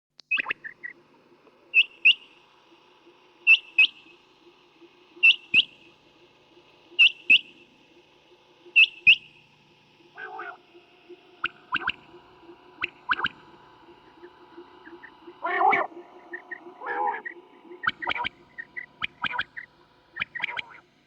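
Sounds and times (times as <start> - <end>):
quail calling: 1.7 - 2.4, 3.4 - 4.2, 4.8 - 5.9, 6.9 - 7.6, 8.6 - 9.3, 10.0 - 20.8.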